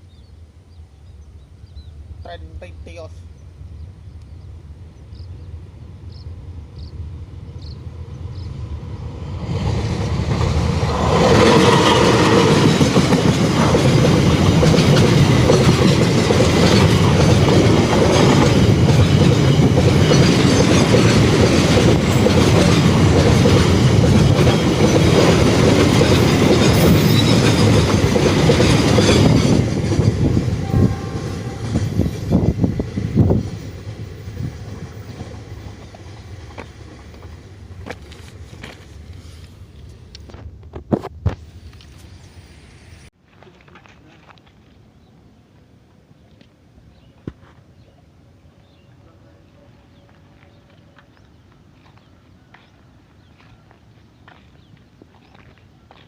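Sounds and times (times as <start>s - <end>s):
diesel train passing: 0.0s - 40.7s.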